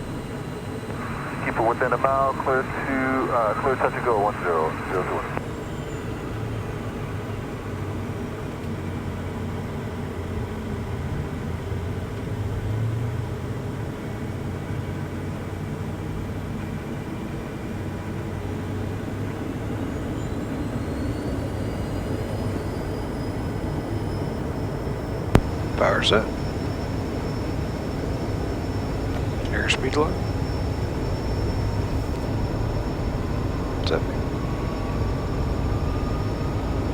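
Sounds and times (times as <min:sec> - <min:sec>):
jet engine drone: 0:00.0 - 0:36.9.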